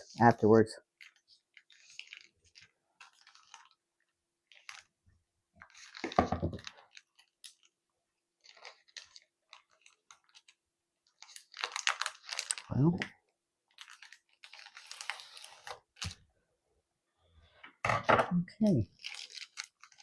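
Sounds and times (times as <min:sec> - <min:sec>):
plastic wrapping crinkling: 0:00.9 - 0:05.0, 0:05.6 - 0:16.2, 0:18.9 - 0:20.0.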